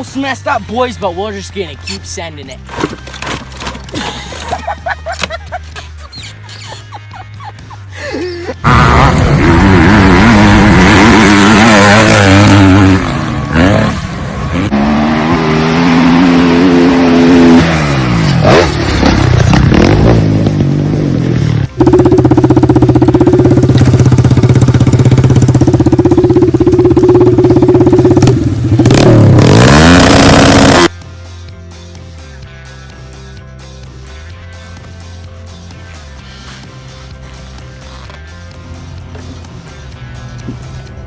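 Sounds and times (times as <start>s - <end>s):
high-revving engine drone: 8.5s - 31.1s
dirt bike engines revving: 8.6s - 30.9s.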